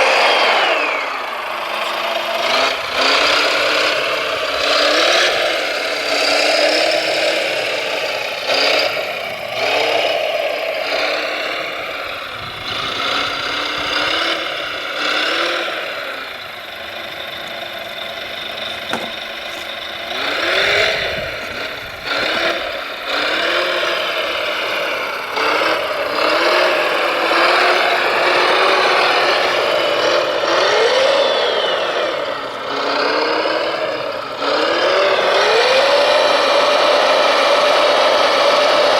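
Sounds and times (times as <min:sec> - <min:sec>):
electric motors whining: 0:00.0 - 0:38.9
rattling: 0:16.4 - 0:23.8
clunks: 0:17.4 - 0:22.2.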